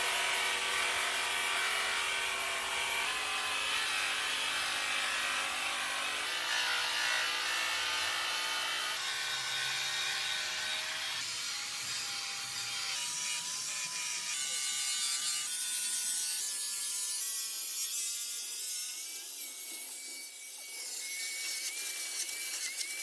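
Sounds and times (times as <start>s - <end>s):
rotary buffer motor whine: 0.0s - 6.3s.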